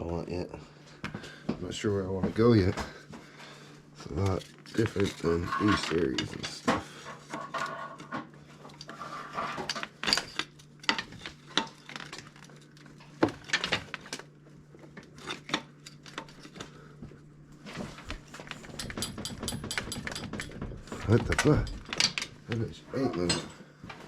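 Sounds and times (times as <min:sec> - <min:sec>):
steady low hum: 0:00.0 - 0:24.0
metal tools clinking: 0:04.2 - 0:06.6, 0:18.5 - 0:22.3, 0:23.0 - 0:23.6.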